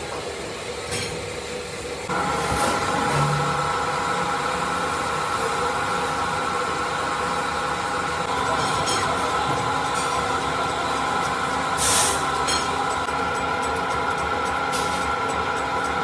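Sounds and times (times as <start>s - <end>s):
lathe running with whine: 3.4s - 16.0s.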